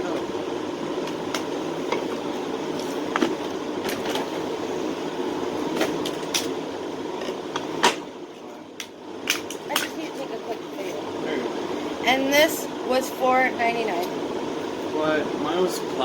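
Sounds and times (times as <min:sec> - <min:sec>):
background hum: 0:00.0 - 0:16.0
items being handled: 0:01.0 - 0:04.6.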